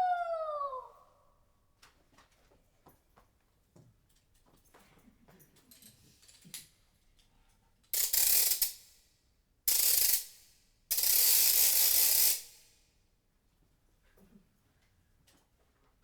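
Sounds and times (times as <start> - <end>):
ratchet-like clockwork winding: 8.0 - 8.9, 9.7 - 12.6.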